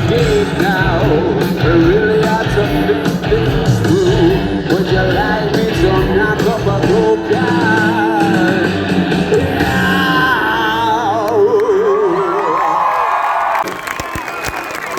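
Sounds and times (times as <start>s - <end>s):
live rock band playing: 0.0s - 11.3s.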